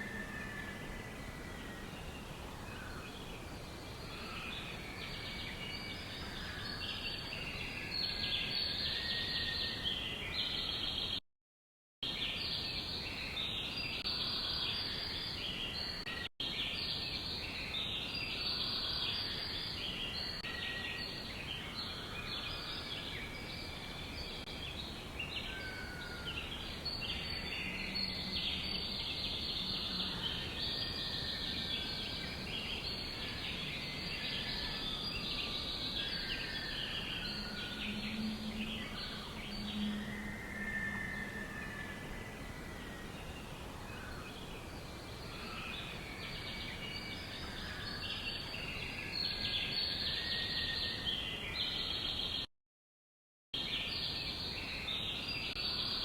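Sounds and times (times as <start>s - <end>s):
songbirds chirping and trilling: 0.0s - 11.2s, 12.0s - 52.5s, 53.6s - 56.0s
steady background hiss: 12.1s - 52.4s.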